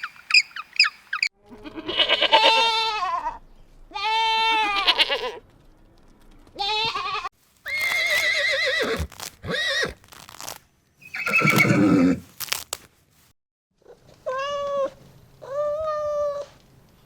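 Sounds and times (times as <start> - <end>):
young goat bleating: 1.5 - 5.4, 6.6 - 12.7.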